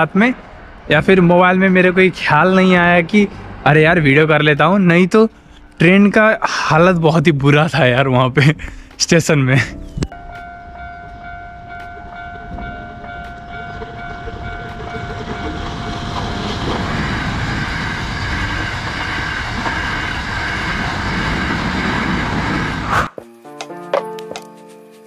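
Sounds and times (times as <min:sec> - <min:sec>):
train rumbling past: 0:00.0 - 0:23.1
steady pulsing tone: 0:10.0 - 0:23.1.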